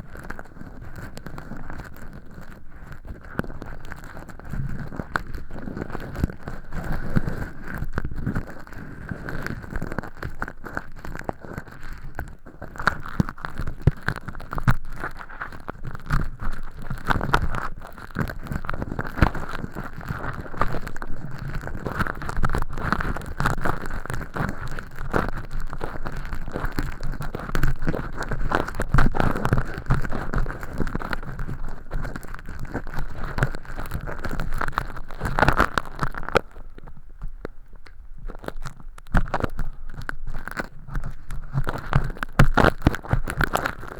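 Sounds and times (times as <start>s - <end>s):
earpick scraping crackling: 0.0s - 43.9s.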